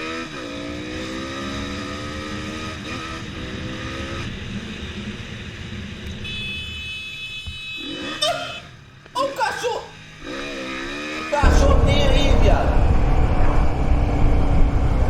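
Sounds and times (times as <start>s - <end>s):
motorcycle engine accelerating: 0.0s - 6.2s, 10.0s - 15.0s.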